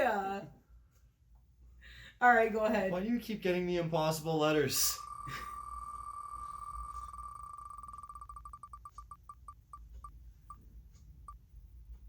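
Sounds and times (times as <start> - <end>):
letter wheel ticking: 4.7 - 11.4.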